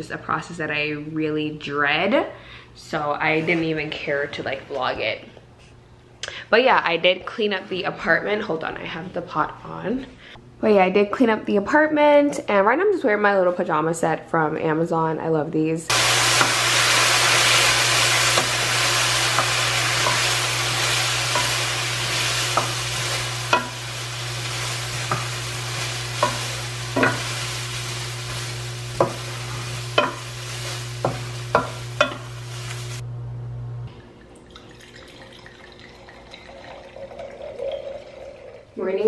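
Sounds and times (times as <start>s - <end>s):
food sizzling in a pot: 15.9s - 33.0s
utensil stirring: 15.9s - 33.0s
steady low hum: 17.7s - 35.0s
utensil tapping a pot: 21.3s - 21.7s, 23.5s - 23.9s, 26.2s - 27.3s, 29.9s - 30.4s, 31.0s - 32.3s.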